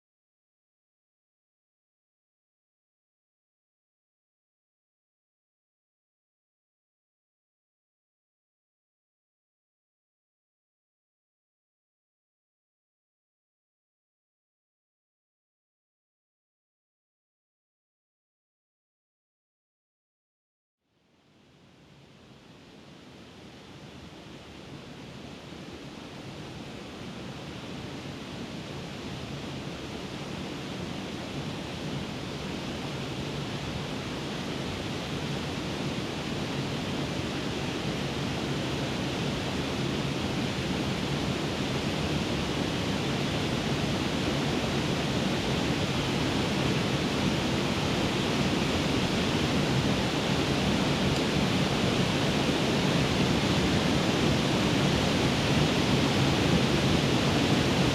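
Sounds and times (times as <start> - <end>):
waterfall rushing: 25.4 - 57.9.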